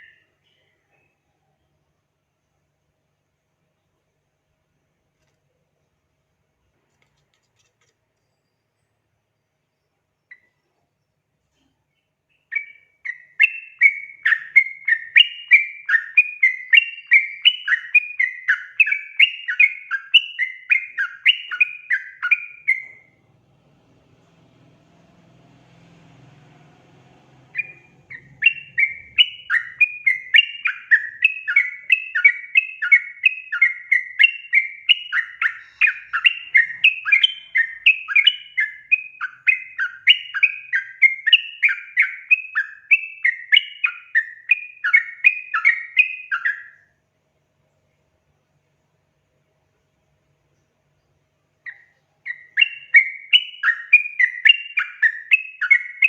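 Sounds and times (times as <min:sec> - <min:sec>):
bird song with bubbly chattering notes: 0:12.0 - 0:23.2, 0:26.1 - 0:46.8, 0:50.8 - 0:56.0.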